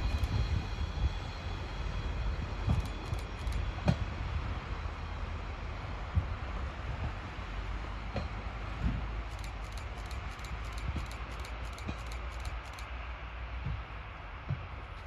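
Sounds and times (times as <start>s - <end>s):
train rumble: 0.0s - 15.0s
rapid sharp ticks: 9.3s - 12.9s.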